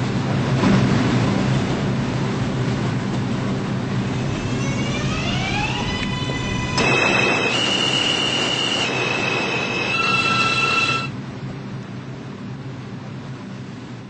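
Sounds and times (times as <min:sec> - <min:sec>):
subway motors whining: 0:00.0 - 0:14.0
train rumble: 0:00.0 - 0:14.0
wheels squealing on rails: 0:03.9 - 0:11.2.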